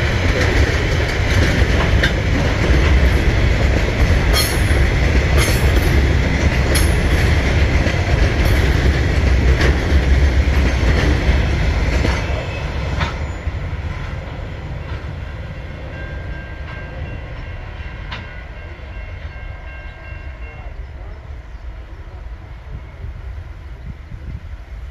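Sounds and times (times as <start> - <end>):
wheels clicking over rail joints: 0.0 - 13.4
freight train rumbling past: 0.0 - 24.9.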